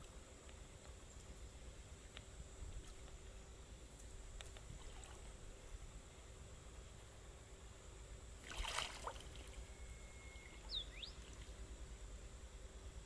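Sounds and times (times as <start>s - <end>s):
water splash: 8.4s - 9.6s.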